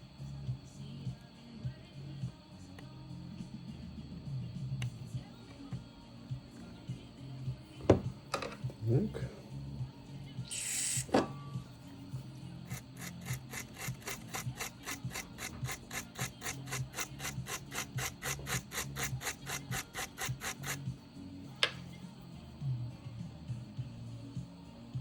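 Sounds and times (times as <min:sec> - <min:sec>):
swab scraping circuit board: 0:12.7 - 0:20.8.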